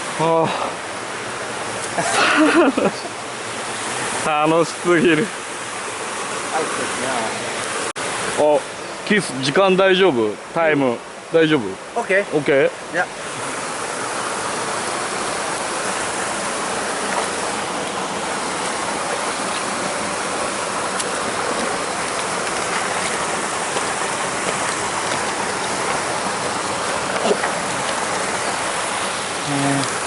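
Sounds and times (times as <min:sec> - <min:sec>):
stream water flowing: 0:00.0 - 0:30.0.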